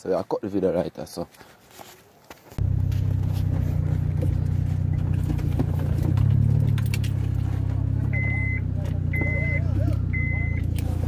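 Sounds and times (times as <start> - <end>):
vehicle engine accelerating: 2.6 - 11.0.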